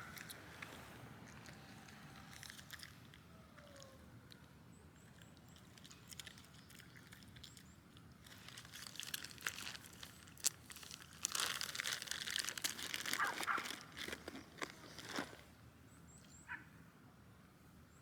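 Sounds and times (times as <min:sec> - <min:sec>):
crinkling and rustling: 0:00.0 - 0:15.6.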